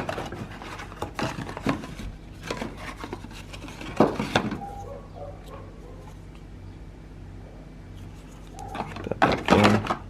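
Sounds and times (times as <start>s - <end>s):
packaging rustling: 0.0s - 4.9s.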